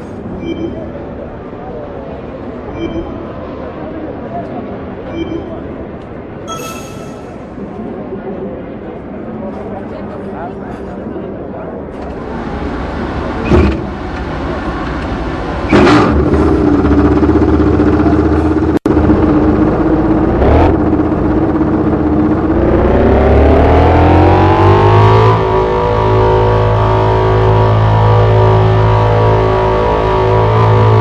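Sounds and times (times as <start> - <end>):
racing motorcycle engine revving: 22.4 - 31.0.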